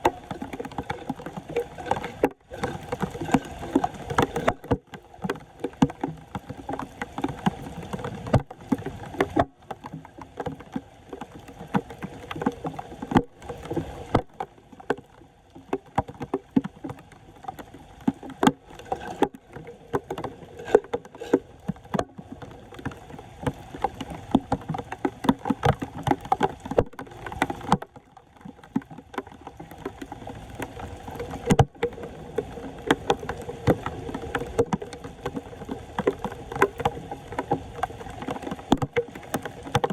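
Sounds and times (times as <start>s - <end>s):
floodwater splashing: 0.0s - 14.9s, 15.5s - 39.9s.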